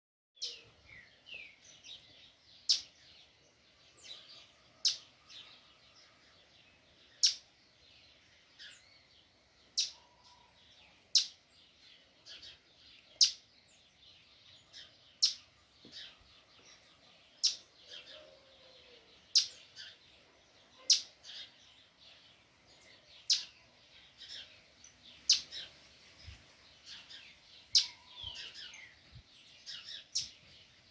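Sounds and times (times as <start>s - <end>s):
soft bird chirps: 0.4s - 30.9s.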